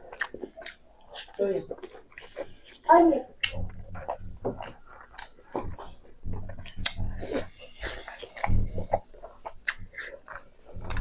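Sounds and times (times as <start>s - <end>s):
wet chewing mouth smacks: 0.0s - 11.0s
soft low thuds: 3.4s - 9.1s.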